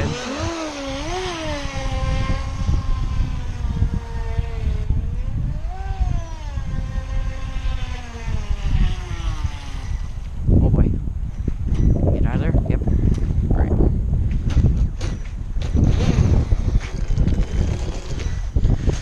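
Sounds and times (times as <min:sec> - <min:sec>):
toy boat electric motor whining: 0:00.0 - 0:10.3, 0:15.6 - 0:18.9
wind on microphone: 0:00.0 - 0:19.0.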